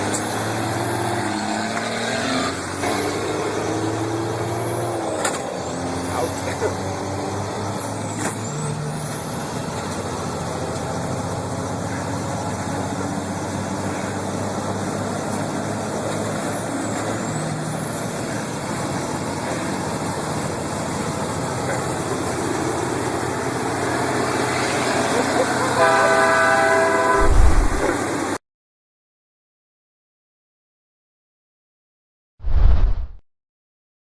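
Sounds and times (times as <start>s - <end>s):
racing truck engines running: 0.0s - 28.4s
high engine whine: 26.8s - 28.4s.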